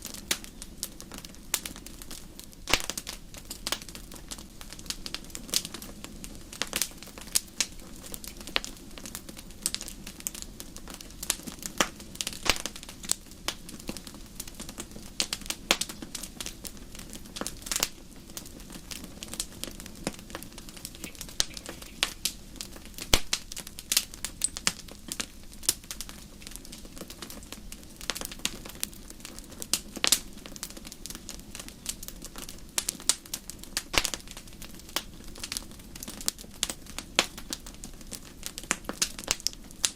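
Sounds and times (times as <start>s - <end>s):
fire snaps and pops: 0.0s - 39.9s
low hiss of burning: 0.0s - 39.9s
wood fire crackling: 0.0s - 39.9s.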